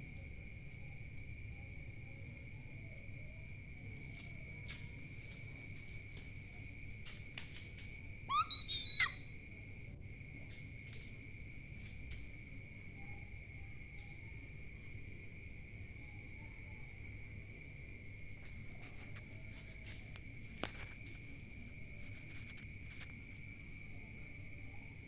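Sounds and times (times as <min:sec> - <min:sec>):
night insects chorus: 0:00.0 - 0:25.0
owl whistled call: 0:08.3 - 0:09.4.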